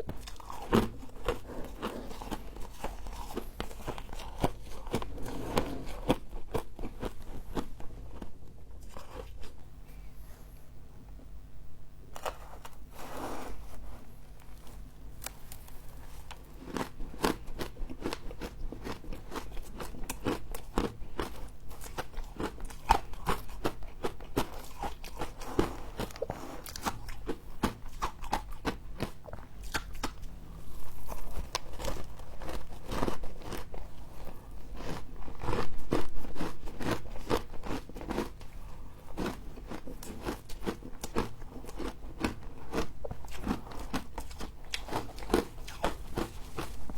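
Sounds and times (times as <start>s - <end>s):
crunching and chewing frost: 0.0s - 10.5s, 12.1s - 46.9s.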